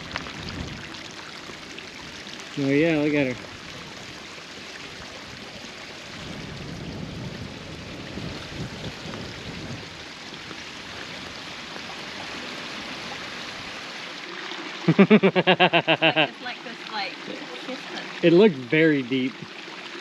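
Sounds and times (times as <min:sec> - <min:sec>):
waterfall stream rushing: 0:07.4 - 0:19.1.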